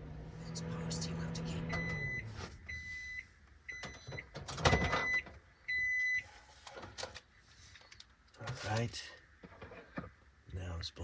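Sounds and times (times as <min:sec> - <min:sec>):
microwave electronic beeps: 0:00.5 - 0:06.2.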